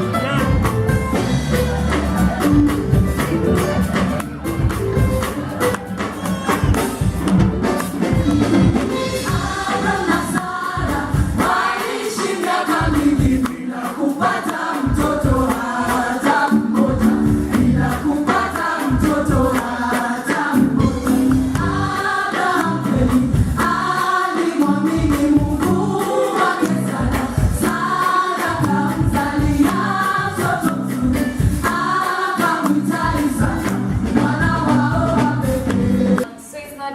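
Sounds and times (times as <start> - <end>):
band with drums and bass: 0.0 - 36.3
voices singing in harmony: 9.0 - 36.3.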